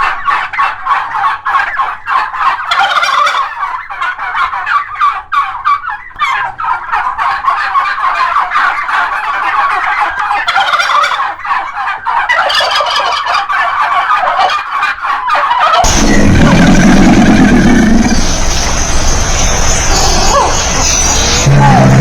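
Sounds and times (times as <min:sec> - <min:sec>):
turkeys gobbling: 0:00.0 - 0:22.0
deep steady sound: 0:15.9 - 0:22.0.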